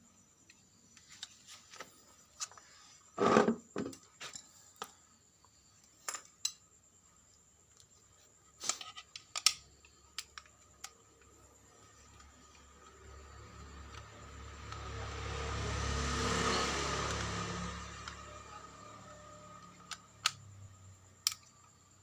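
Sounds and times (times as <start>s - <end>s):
tools clicking and knocking: 8.6s - 11.3s.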